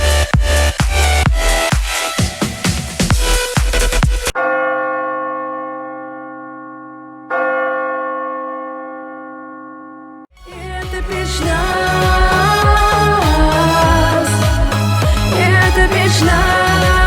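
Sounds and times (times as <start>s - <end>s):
electronic dance music: 0.0s - 4.4s, 10.4s - 17.0s
song playing: 0.0s - 4.4s, 10.3s - 17.0s.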